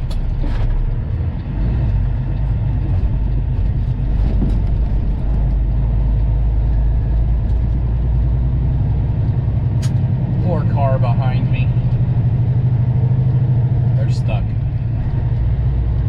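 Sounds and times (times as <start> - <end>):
diesel truck engine droning: 0.0 - 16.0.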